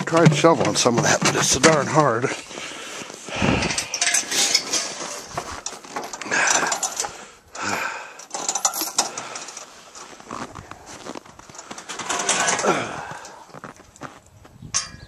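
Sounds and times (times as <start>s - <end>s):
metal gate clinking and scraping: 3.6s - 7.2s, 8.2s - 9.7s, 11.5s - 13.4s, 14.8s - 15.0s.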